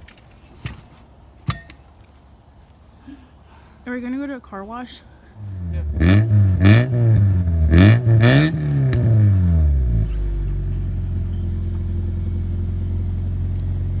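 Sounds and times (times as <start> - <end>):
car engine revving and idling: 5.4 - 14.0.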